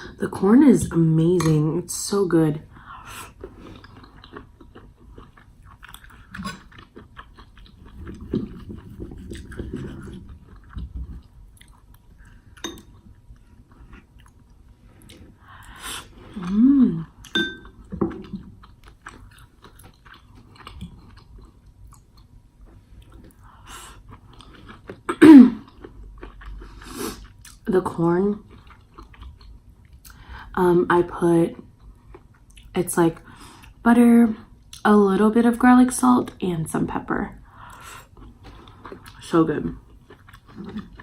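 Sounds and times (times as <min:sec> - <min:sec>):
chewing and biting food: 0:03.3 - 0:15.3, 0:17.2 - 0:27.6, 0:28.4 - 0:30.2, 0:39.8 - 0:41.0.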